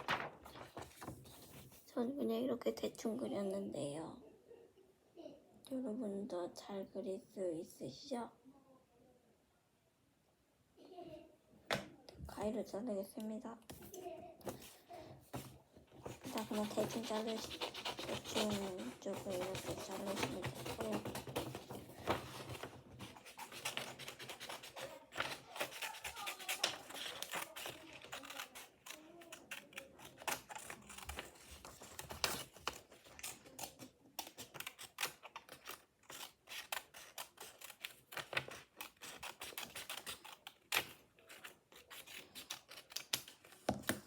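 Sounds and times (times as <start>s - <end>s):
scissors snipping through paper: 15.4s - 44.0s.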